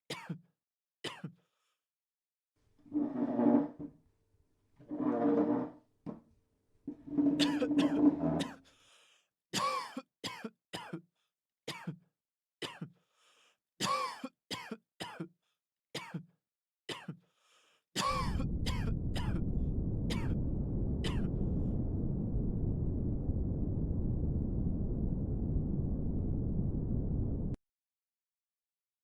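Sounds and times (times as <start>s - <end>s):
person coughing: 0.1s - 0.5s, 1.1s - 1.4s, 7.4s - 8.6s, 9.6s - 11.0s, 11.7s - 13.0s, 13.8s - 15.3s, 16.0s - 16.3s, 16.9s - 17.2s, 18.0s - 19.4s, 21.1s - 21.3s
steady low noise: 18.2s - 27.6s.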